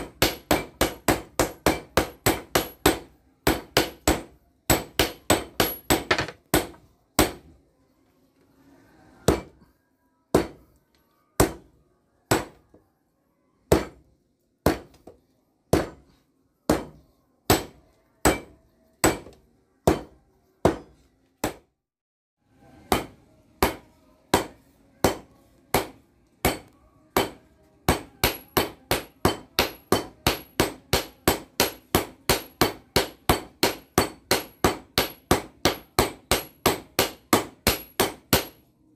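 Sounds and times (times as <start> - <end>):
hammer striking steel on anvil: 0.0 - 7.4, 9.2 - 9.7, 10.3 - 10.6, 13.7 - 14.0, 15.7 - 21.6, 22.8 - 38.7.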